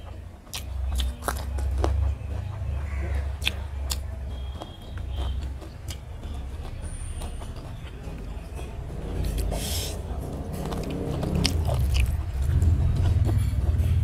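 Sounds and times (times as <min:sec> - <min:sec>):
person chewing food: 0:00.0 - 0:13.4
low steady rumble: 0:00.0 - 0:14.0
mouth clicks and smacks: 0:00.4 - 0:08.3.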